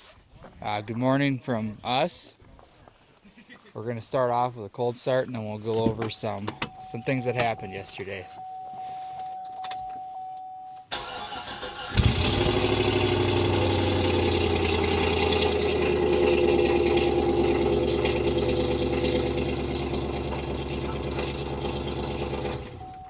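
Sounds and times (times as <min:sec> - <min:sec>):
starter motor cranking: 0:10.9 - 0:23.0
truck engine starting and running: 0:10.9 - 0:23.0.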